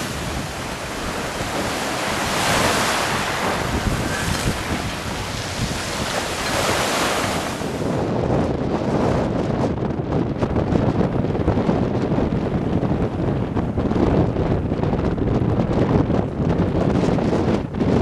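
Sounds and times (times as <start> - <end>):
sea waves washing: 0.0 - 8.2
wind gusting on microphone: 0.0 - 18.0.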